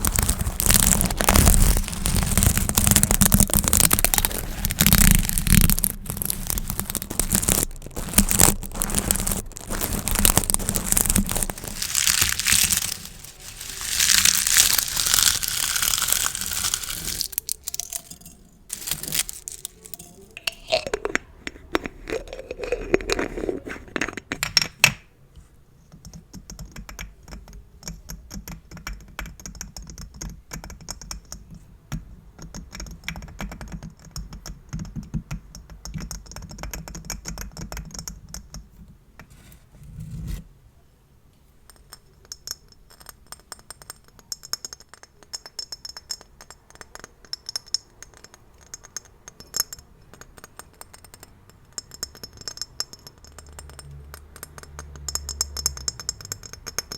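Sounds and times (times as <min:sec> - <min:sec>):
plastic gift bows crinkling: 0:00.0 - 0:24.2.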